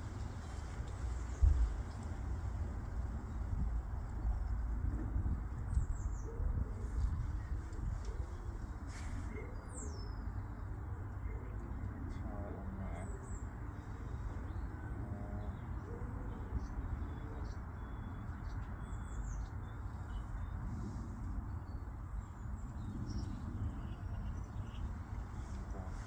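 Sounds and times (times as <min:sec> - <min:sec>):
steady low rumble: 0:00.0 - 0:26.0
small birds chirping: 0:11.4 - 0:26.0.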